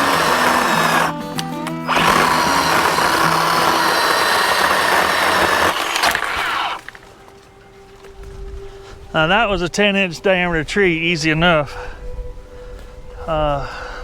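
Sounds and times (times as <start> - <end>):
electric chainsaw cutting wood: 0.0 - 7.0.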